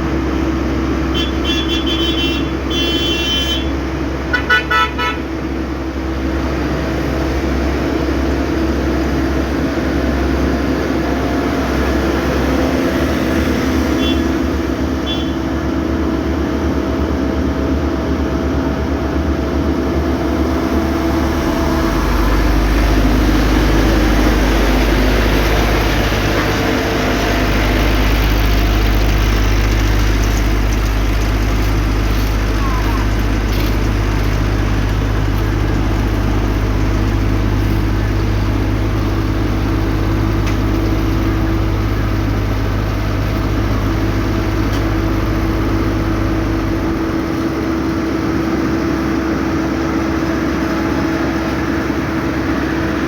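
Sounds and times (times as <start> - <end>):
vehicle engine running: 0.0 - 53.0
horn toots: 1.1 - 5.3, 11.2 - 15.6.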